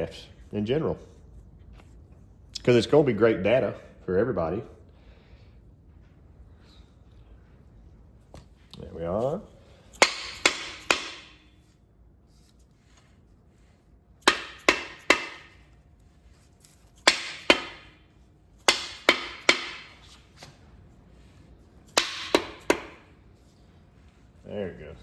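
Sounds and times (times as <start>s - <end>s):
hammer striking metal: 9.9s - 11.5s, 14.2s - 15.7s, 17.0s - 18.0s, 18.6s - 20.2s, 21.9s - 23.1s.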